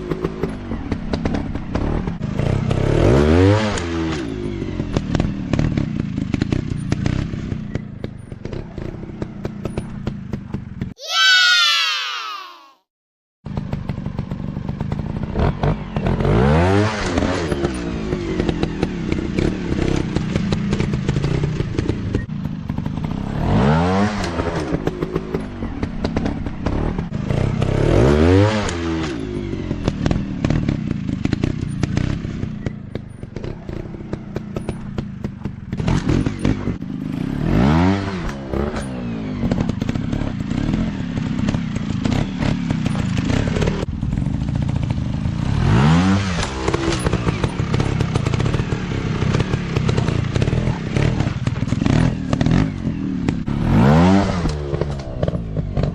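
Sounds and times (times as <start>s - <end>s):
dirt bike engines revving: 13.6s - 55.9s.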